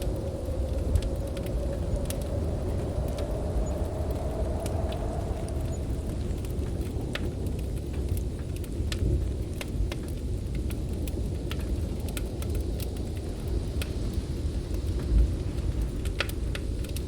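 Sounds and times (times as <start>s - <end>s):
blizzard wind rumbling: 0.0s - 17.0s
wood fire crackling: 0.0s - 17.0s.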